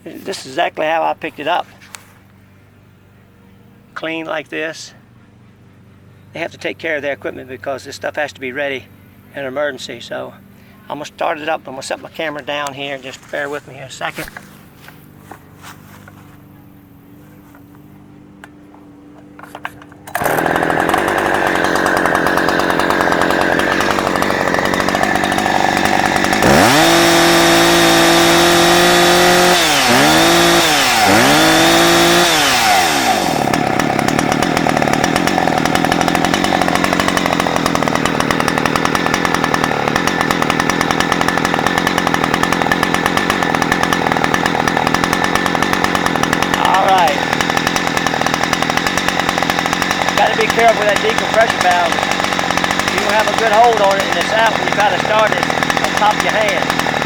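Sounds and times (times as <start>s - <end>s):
chainsaw starting and revving: 9.8s - 16.5s, 19.2s - 57.0s.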